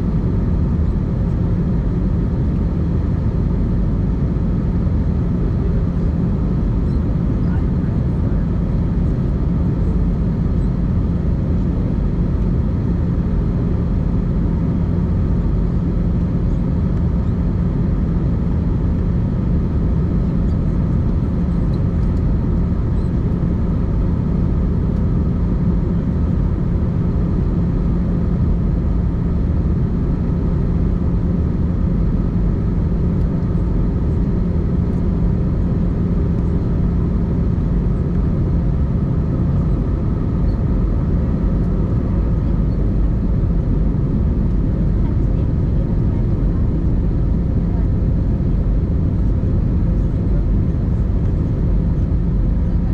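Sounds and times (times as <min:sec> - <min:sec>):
airplane cabin engine rumble: 0:00.0 - 0:52.9.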